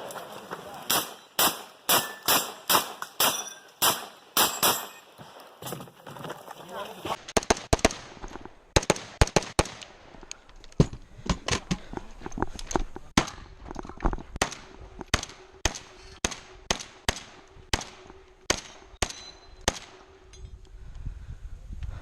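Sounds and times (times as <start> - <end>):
rapid gunshots: 0.9 - 4.8, 7.3 - 8.2, 8.8 - 9.8.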